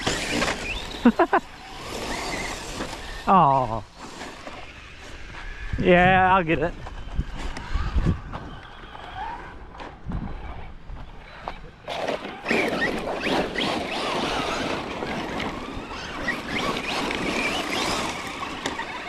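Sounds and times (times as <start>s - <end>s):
rc truck motor whining: 0.0s - 5.9s, 6.5s - 19.0s
tyres crunching on gravel: 8.4s - 19.0s.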